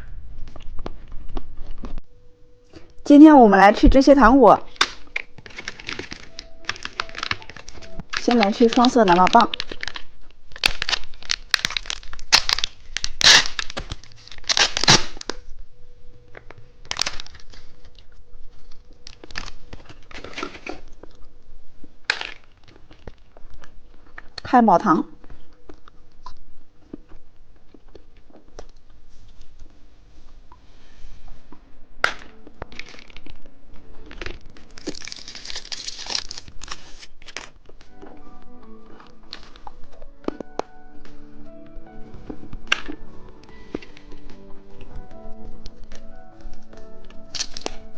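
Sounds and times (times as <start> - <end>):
plastic wrapper crinkling: 4.1 - 15.6, 16.2 - 24.5, 32.0 - 47.9
plastic wrapper tearing: 4.6 - 15.5, 16.4 - 21.3, 22.0 - 24.5, 32.0 - 47.9.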